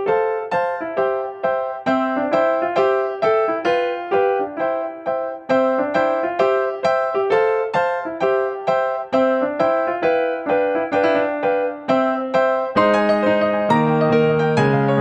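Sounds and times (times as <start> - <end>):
electric piano melody: 0.0 - 15.0.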